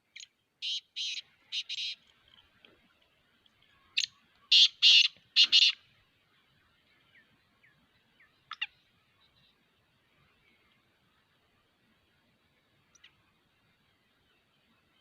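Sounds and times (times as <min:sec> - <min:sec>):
bird calling harshly: 0:00.2 - 0:02.0, 0:04.0 - 0:05.8.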